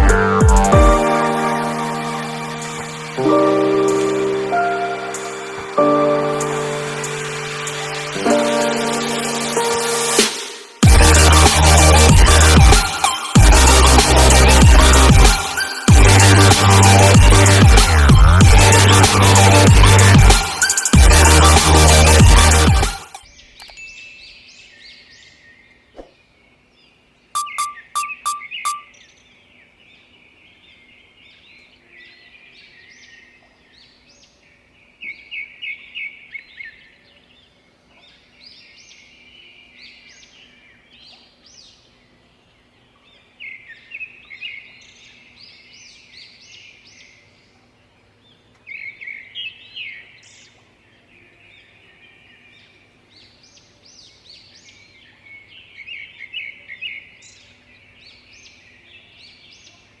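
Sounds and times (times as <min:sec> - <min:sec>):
small birds chirping: 0:23.1 - 1:00.0.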